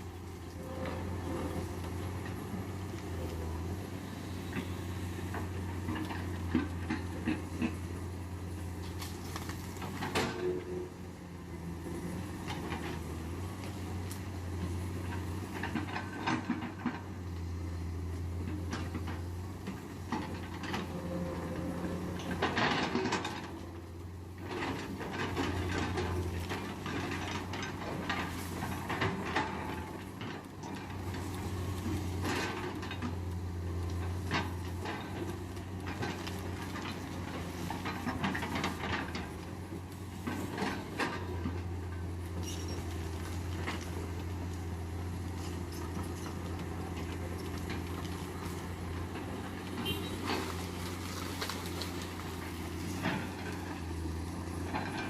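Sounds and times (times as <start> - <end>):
diesel excavator engine under load: 0.0 - 55.0
metallic clanks and knocks: 18.5 - 23.7.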